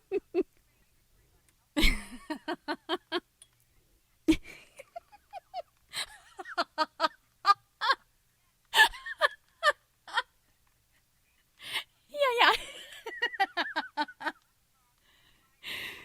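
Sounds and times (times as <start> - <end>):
woman laughing: 0.0 - 0.6, 1.8 - 3.2, 4.3 - 8.0, 8.8 - 10.3, 12.2 - 14.4.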